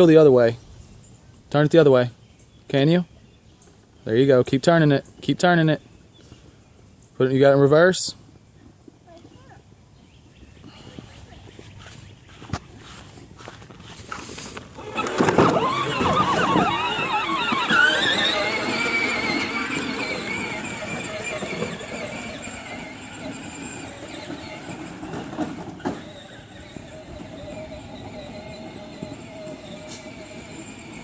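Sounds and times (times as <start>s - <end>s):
tractor motor whining: 11.8s - 31.0s.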